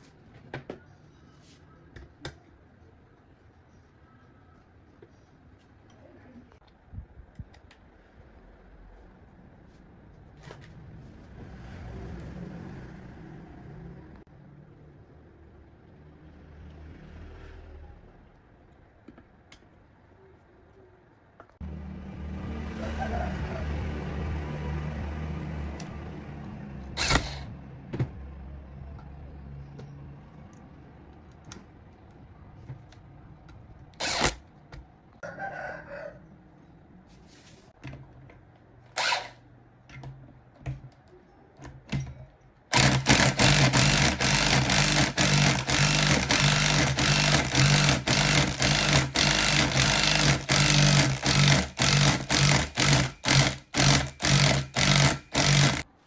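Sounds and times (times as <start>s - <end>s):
small motor humming: 27.0s - 27.5s, 39.0s - 39.4s, 42.7s - 55.9s.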